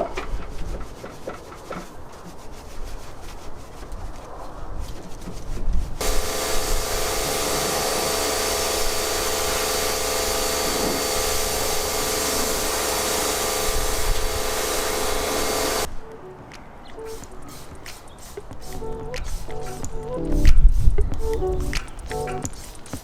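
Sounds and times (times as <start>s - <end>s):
motor-driven machine running: 6.0s - 15.9s.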